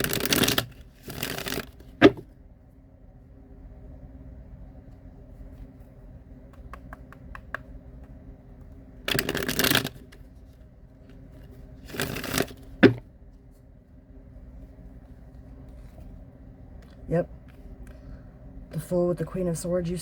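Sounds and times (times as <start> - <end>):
cards riffling: 0.0 - 2.2, 9.1 - 10.3, 11.8 - 13.0
cards slapping: 0.0 - 2.3, 9.1 - 10.2, 11.8 - 13.0
cards ticking: 9.1 - 10.0, 11.9 - 12.6.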